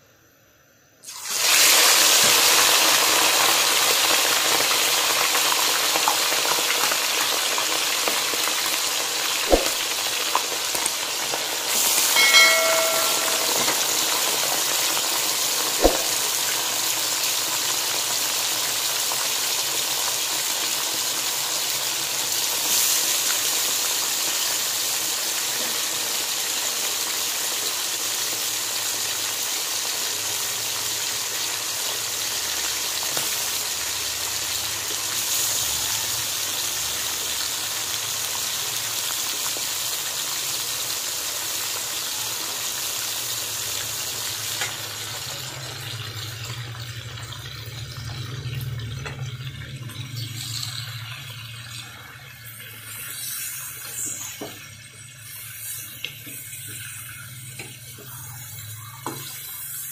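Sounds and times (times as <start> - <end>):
chicken sizzling in hot oil: 1.0 - 59.9
sharp knocks: 9.5 - 9.9, 15.8 - 16.2.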